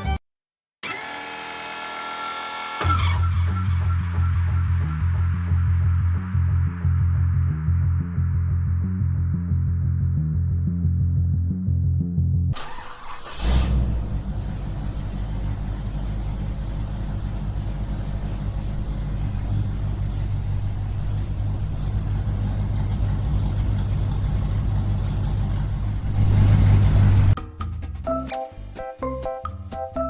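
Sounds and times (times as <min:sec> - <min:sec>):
small engine running: 0:00.8 - 0:03.2.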